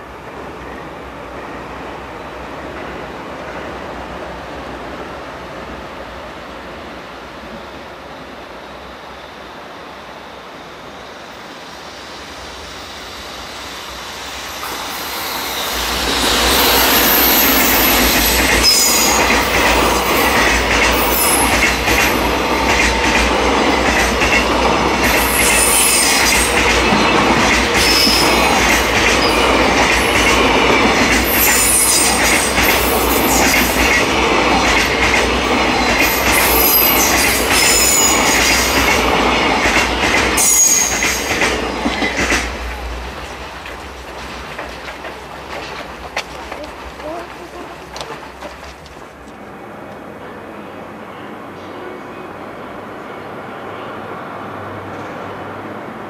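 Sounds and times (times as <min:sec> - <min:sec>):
freight train wheels rumbling: 0:00.0 - 0:56.0
high-pitched wheel squeals: 0:13.2 - 0:19.4, 0:27.8 - 0:28.6, 0:40.4 - 0:41.3.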